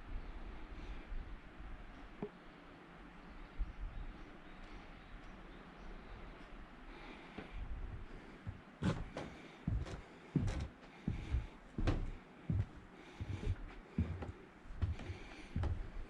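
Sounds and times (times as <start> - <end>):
footsteps walking: 7.4 - 16.0.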